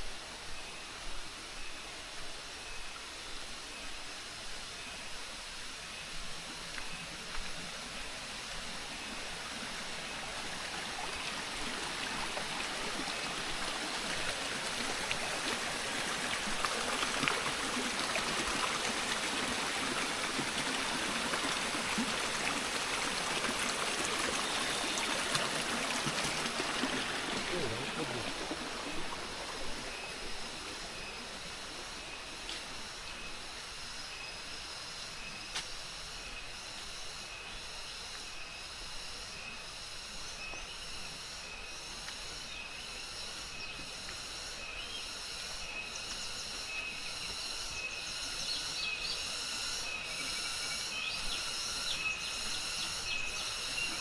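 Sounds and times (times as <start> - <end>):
footsteps on trail: 6.1 - 8.1, 32.2 - 32.9, 35.4 - 36.0
stream water rushing: 6.2 - 33.5.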